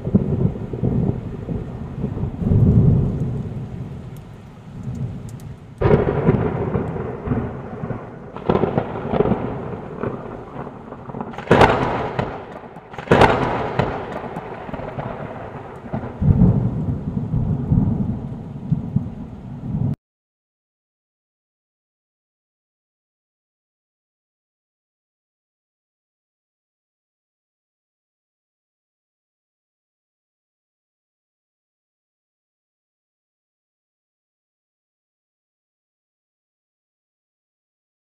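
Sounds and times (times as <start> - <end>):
close thunder cracks: 0.0 - 4.0, 5.8 - 20.0
low rolling thunder rumbles: 0.0 - 20.0.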